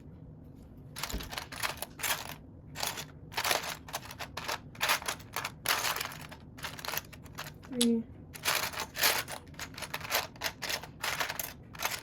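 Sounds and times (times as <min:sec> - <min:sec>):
plastic toy bricks clattering: 0:01.0 - 0:12.0.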